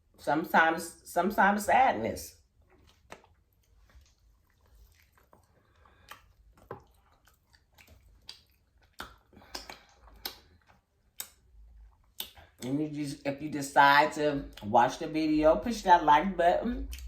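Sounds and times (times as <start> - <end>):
person chewing food: 2.4 - 12.7, 16.8 - 17.0.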